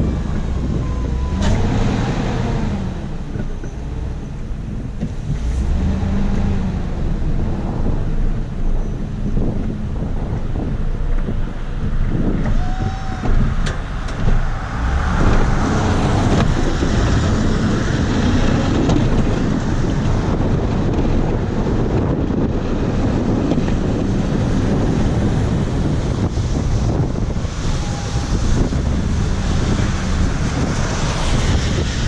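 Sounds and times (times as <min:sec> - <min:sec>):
snow plow pushing snow: 0:00.0 - 0:32.0
wind buffeting microphone: 0:00.0 - 0:32.0
truck engine running under load: 0:13.2 - 0:32.0.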